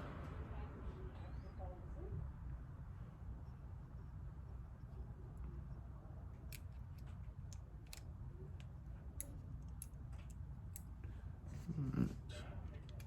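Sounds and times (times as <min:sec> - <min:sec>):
small clicks of metal parts: 0:06.3 - 0:11.2, 0:12.8 - 0:13.0.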